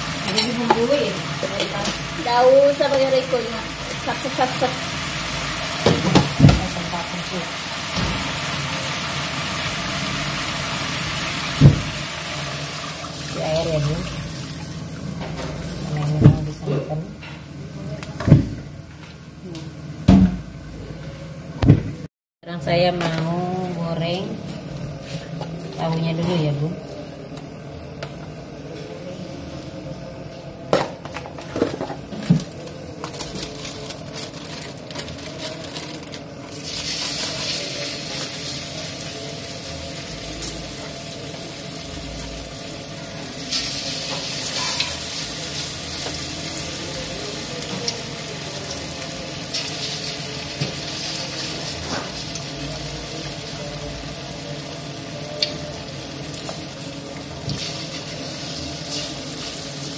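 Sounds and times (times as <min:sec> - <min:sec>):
food sizzling in hot oil: 0:00.0 - 0:16.4, 0:32.4 - 0:59.9.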